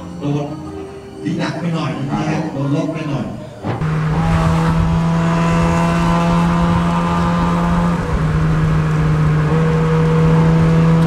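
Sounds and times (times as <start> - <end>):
car engine running at high revs: 3.6 - 11.0.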